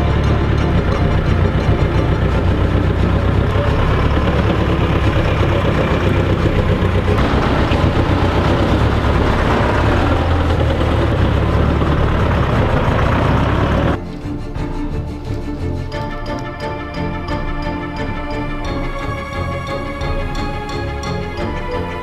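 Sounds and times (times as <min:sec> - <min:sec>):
tractor engine droning: 0:00.0 - 0:14.0.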